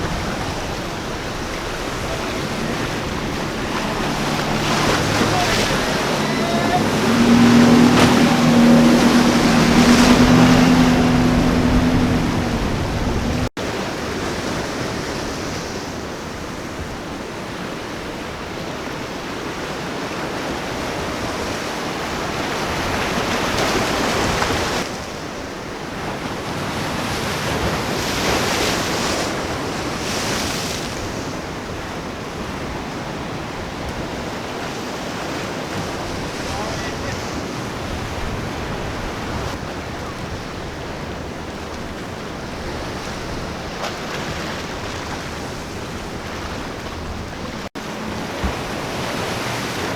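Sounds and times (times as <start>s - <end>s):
wind on microphone: 0.0s - 13.5s
boat engine running: 0.0s - 15.0s, 26.0s - 49.9s
waves breaking: 0.0s - 49.9s.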